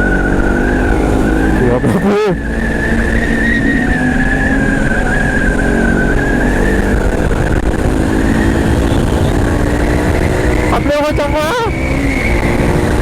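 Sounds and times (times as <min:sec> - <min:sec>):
motorcycle engine cruising: 0:00.0 - 0:13.0
wind rush on microphone: 0:02.9 - 0:13.0.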